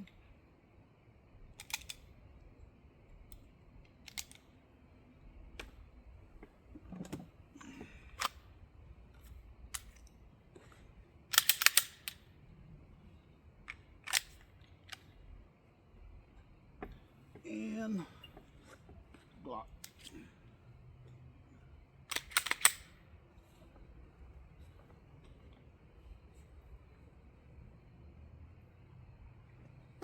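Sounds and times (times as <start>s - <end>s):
pistol magazine clicks: 1.6s - 2.0s, 11.3s - 12.2s, 14.0s - 15.0s, 22.1s - 22.9s.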